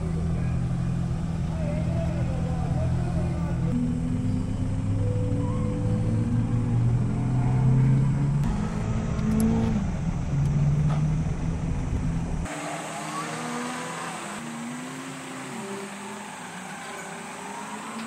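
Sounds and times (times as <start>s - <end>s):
car engine revving: 0.0s - 18.0s
faint engine with gliding pitch: 0.0s - 18.0s.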